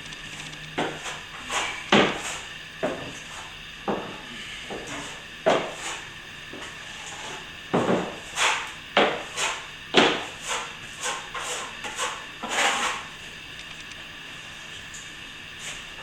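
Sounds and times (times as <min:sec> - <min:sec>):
trowel scraping plaster: 0:08.2 - 0:13.1.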